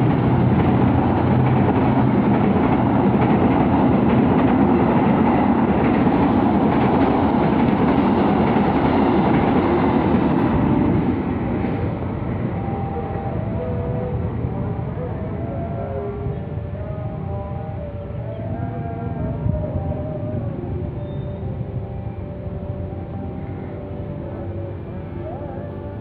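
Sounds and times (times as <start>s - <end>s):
train rumbling past on rails: 0.0s - 26.0s.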